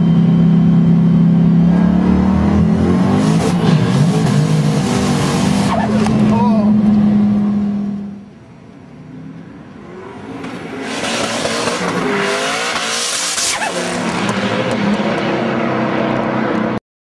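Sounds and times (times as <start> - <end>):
car engine revving: 0.6 - 8.3, 9.6 - 16.8
tyres screeching while spinning: 5.4 - 6.1, 13.0 - 14.0.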